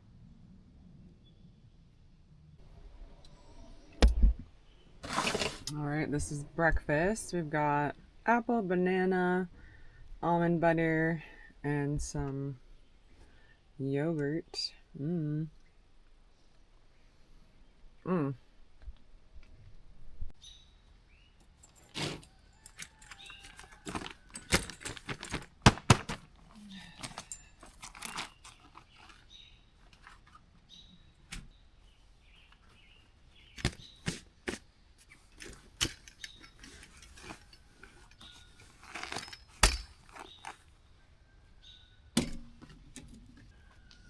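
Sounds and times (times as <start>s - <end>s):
crunching: 21.5s - 30.5s.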